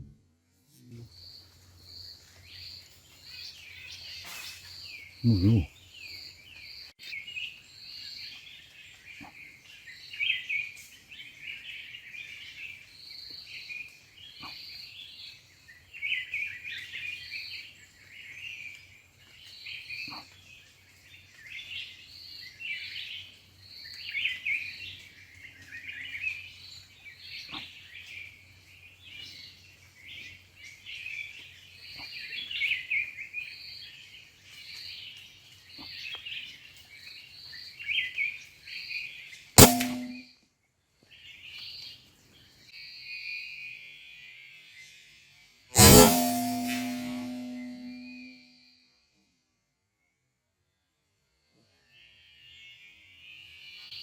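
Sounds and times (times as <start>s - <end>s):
small birds chirping: 0.8s - 40.2s
short high bird note: 39.6s - 40.2s, 45.8s - 48.3s.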